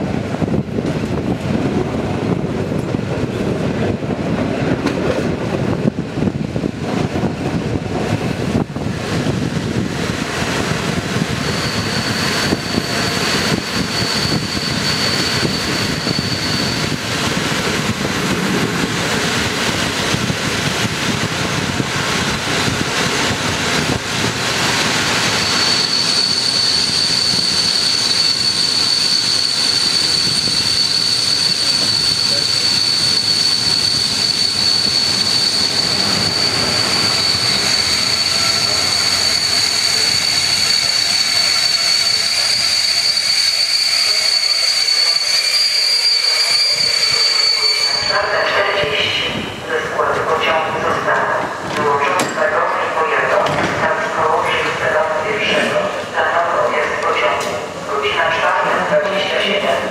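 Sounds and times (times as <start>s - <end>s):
train wheels rumbling on rails: 0.0s - 59.9s
high brake squeal: 11.4s - 17.0s, 25.3s - 48.4s.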